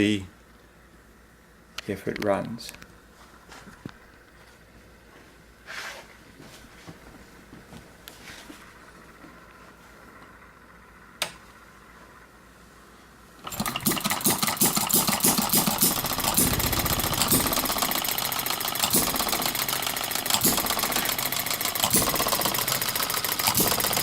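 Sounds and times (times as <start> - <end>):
hit-and-miss engine firing: 13.5 - 24.0.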